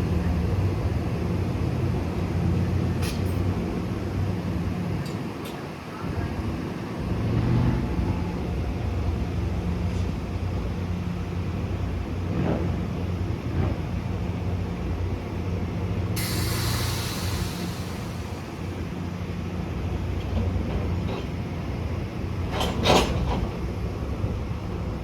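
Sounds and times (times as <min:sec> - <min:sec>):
diesel train rumbling: 0:00.0 - 0:25.0
air brake hiss: 0:16.2 - 0:18.9.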